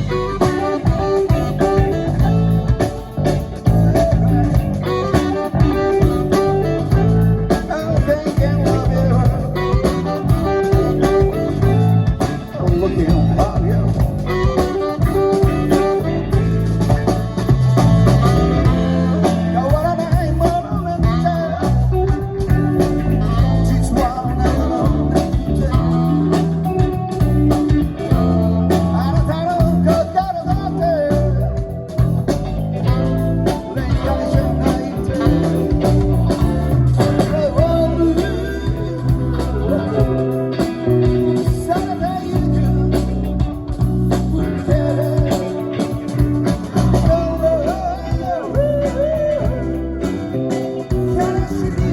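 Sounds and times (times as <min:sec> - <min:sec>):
lead guitar line or vocal: 0:00.0 - 0:51.9
live rock band playing blues: 0:00.0 - 0:51.9.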